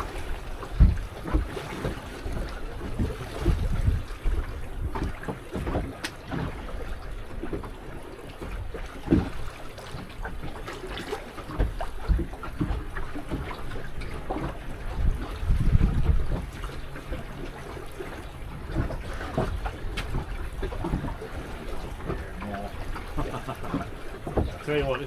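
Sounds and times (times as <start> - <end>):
low thumps and knocks: 0.0 - 6.6, 11.5 - 16.7, 18.6 - 24.7
wind buffeting microphone: 0.0 - 7.6, 11.5 - 25.0
water slapping boat hull: 0.0 - 25.0.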